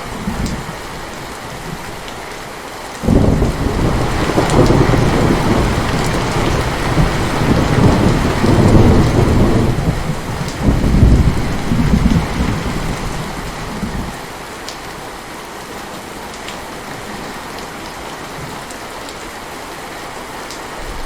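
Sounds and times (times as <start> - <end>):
heavy rain: 0.0 - 21.0
rolling thunder: 3.0 - 14.2.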